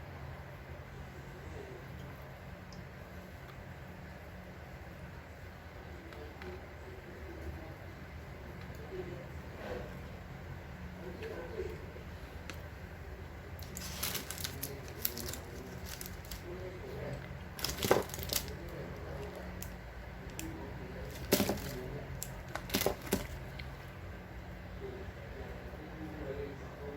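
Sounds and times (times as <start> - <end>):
plastic wrappers crinkling and tearing: 13.6 - 16.5, 17.5 - 23.6.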